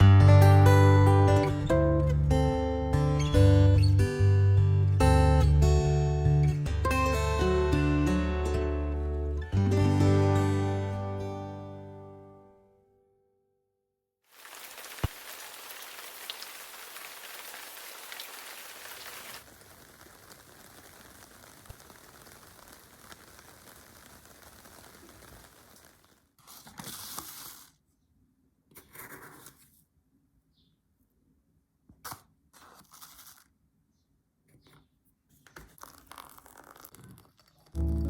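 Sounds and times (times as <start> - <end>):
steady rain falling: 14.3 - 26.2.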